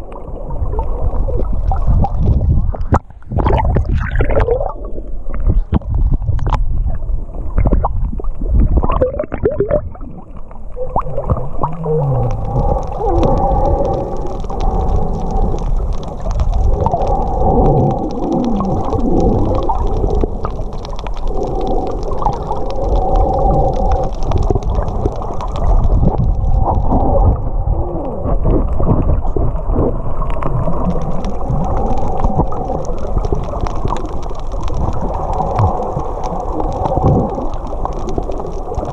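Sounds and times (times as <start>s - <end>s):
low rumble of water: 0.0s - 38.9s
humpback whale song: 10.8s - 16.0s.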